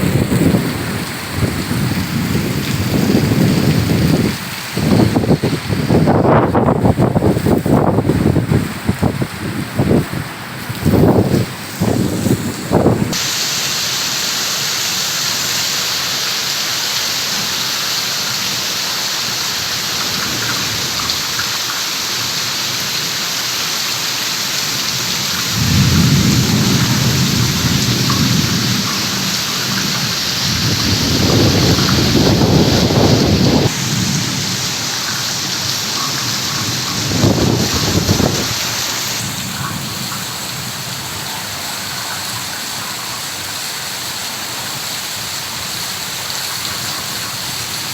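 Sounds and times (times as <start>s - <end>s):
low thunder rumbles: 0.0s - 13.2s, 25.0s - 38.6s
heavy rain hissing: 0.0s - 47.9s.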